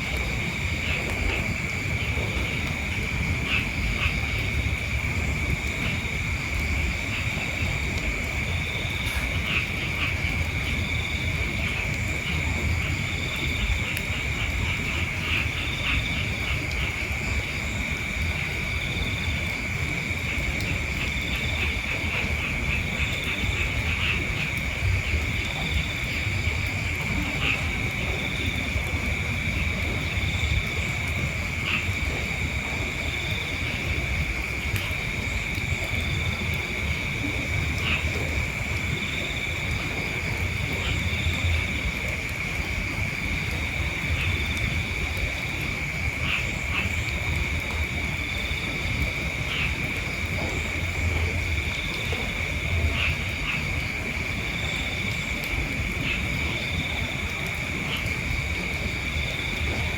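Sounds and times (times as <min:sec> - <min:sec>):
faint repeating insect call: 0:00.0 - 0:59.9
insects chirring: 0:00.0 - 0:59.9.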